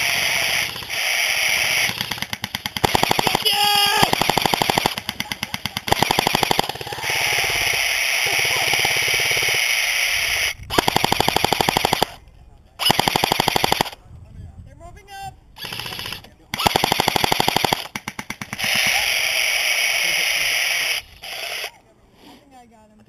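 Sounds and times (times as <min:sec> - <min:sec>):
airsoft gun firing full auto: 0:00.0 - 0:09.8, 0:10.7 - 0:12.2, 0:12.8 - 0:14.0, 0:15.6 - 0:20.0.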